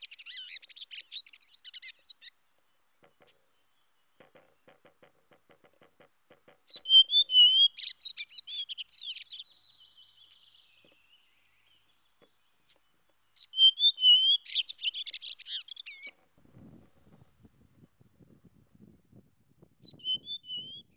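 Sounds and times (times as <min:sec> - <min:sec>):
songbird warbling: 0:00.0 - 0:05.8, 0:06.4 - 0:16.3.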